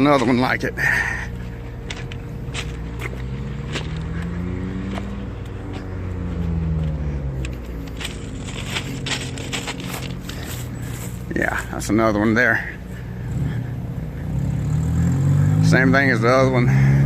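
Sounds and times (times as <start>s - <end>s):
low engine hum: 0.0s - 17.0s
motor vehicle passing: 0.0s - 17.0s
small clicks and crunches: 6.8s - 11.0s.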